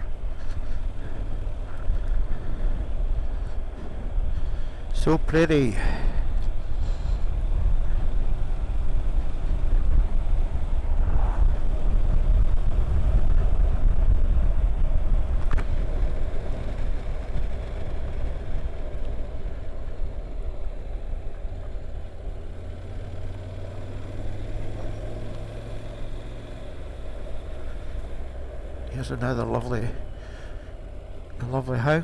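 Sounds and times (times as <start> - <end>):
motorcycle engine running: 0.0 - 32.0
road noise: 0.0 - 32.0.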